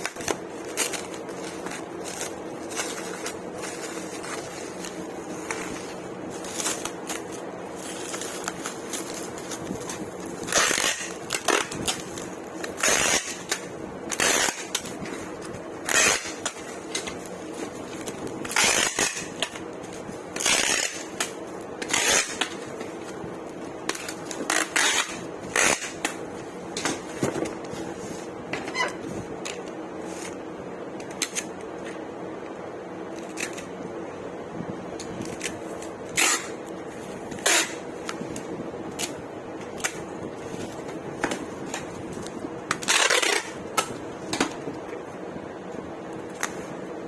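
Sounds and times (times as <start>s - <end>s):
packaging rustling: 0.0s - 28.0s
steady hum: 0.0s - 47.0s.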